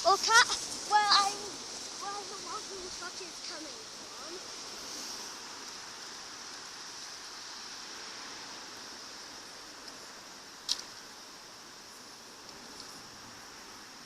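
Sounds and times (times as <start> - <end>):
faint outdoor hiss: 0.0 - 14.0
sharp click: 10.6 - 10.9.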